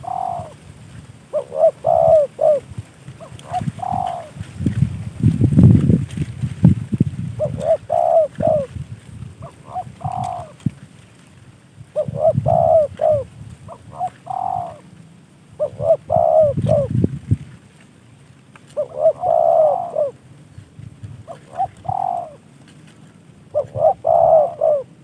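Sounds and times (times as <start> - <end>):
dove cooing: 0.0 - 4.8, 7.4 - 8.8, 9.4 - 10.8, 11.9 - 17.0, 18.7 - 20.6, 21.2 - 22.6, 23.5 - 25.0.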